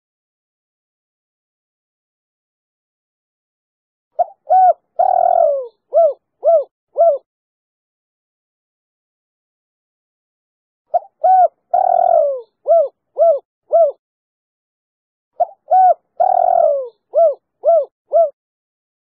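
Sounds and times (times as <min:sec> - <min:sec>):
dove cooing: 0:04.2 - 0:07.3, 0:10.9 - 0:14.0, 0:15.4 - 0:18.4.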